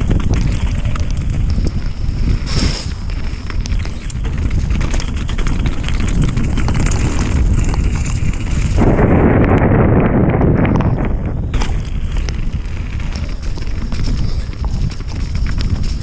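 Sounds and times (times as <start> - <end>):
bike rattling and knocking: 0.0 - 16.0
wind rushing over microphone: 0.0 - 16.0.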